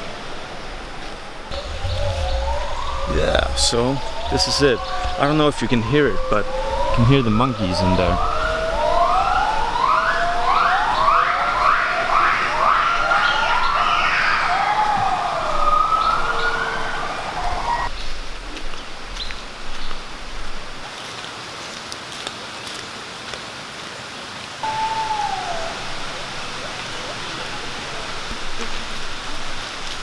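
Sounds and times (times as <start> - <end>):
gibbons whooping calls: 1.5 - 17.9, 24.6 - 28.6.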